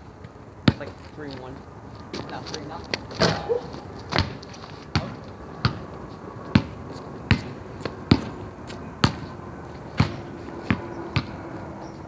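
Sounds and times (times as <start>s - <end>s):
basketball bouncing on hard court: 3.2s - 5.8s, 6.5s - 8.4s, 9.0s - 9.3s, 10.0s - 11.4s.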